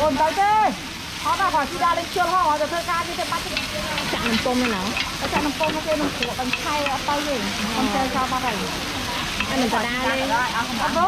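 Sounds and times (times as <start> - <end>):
cakes sizzling in a pan: 0.0 - 11.0
people talking: 0.0 - 11.0
pick tapping and scraping pan: 3.4 - 7.3, 9.3 - 9.7.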